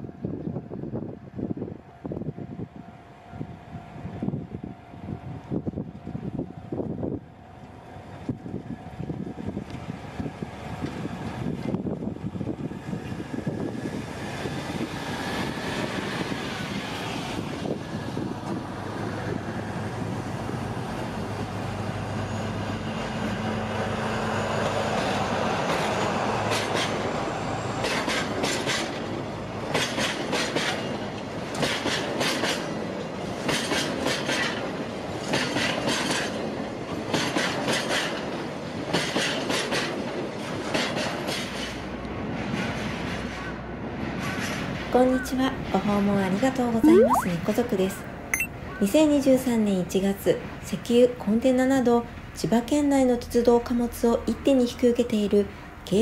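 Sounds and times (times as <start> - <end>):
train wheels clicking over rail joints: 29.7 - 32.8.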